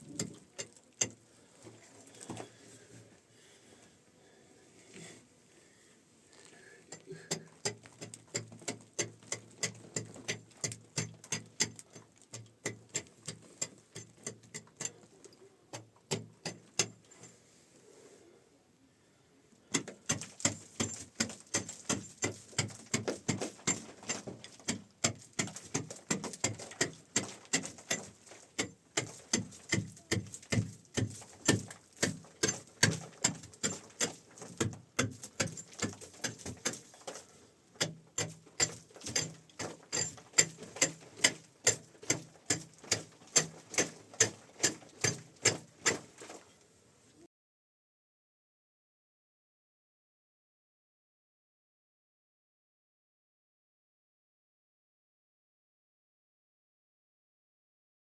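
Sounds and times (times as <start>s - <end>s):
hand tool striking: 6.9s - 15.1s, 15.8s - 17.0s, 19.7s - 46.5s.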